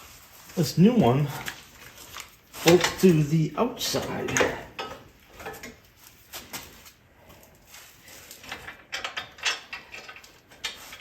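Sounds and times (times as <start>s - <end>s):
metal parts clanking: 2.6s - 5.8s, 8.3s - 11.0s.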